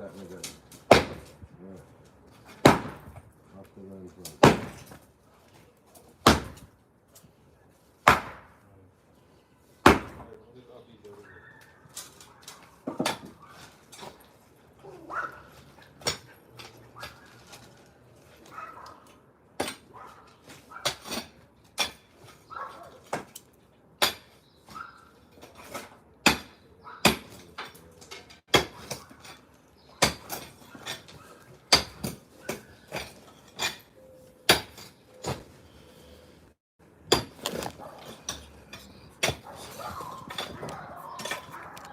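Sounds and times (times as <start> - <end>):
tools striking concrete: 24.0 - 24.4, 25.4 - 33.9, 34.5 - 35.4, 37.0 - 41.8.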